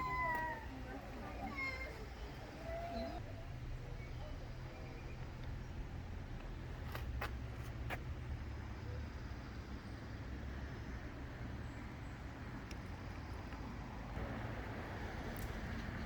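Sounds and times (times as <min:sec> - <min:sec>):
low outdoor rumble: 0:00.0 - 0:16.0
faint sharp clicks: 0:12.6 - 0:12.9.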